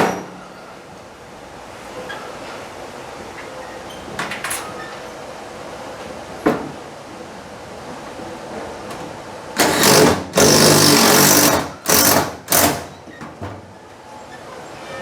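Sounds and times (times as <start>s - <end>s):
cordless power driver running: 9.6s - 12.9s.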